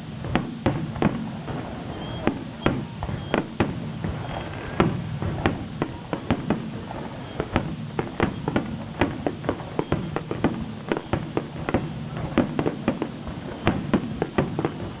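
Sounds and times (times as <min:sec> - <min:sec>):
rumbling echo: 0:00.0 - 0:09.8
fireworks bangs: 0:00.0 - 0:15.0.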